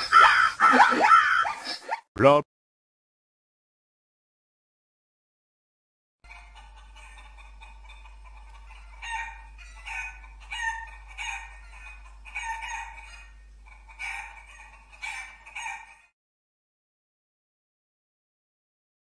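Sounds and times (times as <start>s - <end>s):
chickens squawking and clucking: 0.0s - 2.0s, 6.2s - 16.2s.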